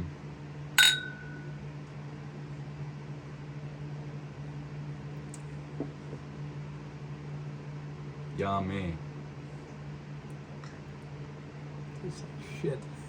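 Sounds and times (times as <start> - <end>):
fan humming: 0.0 - 2.4.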